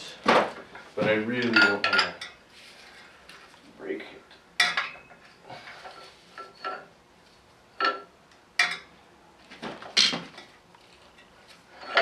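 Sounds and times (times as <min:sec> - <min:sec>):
metal tools clanking: 0:01.3 - 0:02.4, 0:11.8 - 0:12.0.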